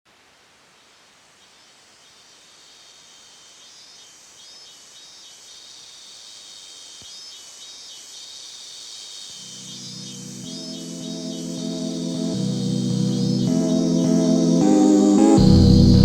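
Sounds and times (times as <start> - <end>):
cicadas buzzing: 1.9 - 16.0.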